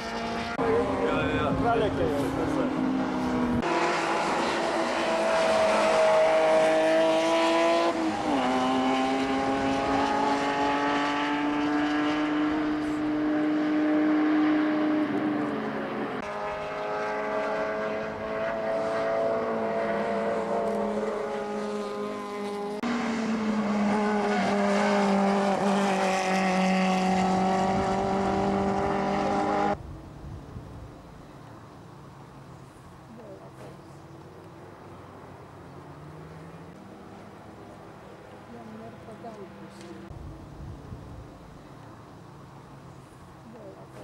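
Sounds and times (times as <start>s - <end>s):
race car engine revving through gears: 0.0s - 29.8s.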